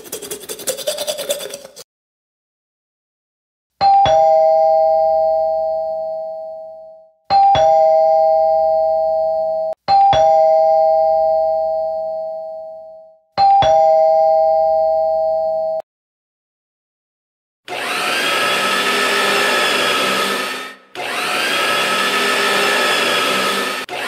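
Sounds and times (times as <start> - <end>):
two-tone doorbell chime: 3.8 - 15.8.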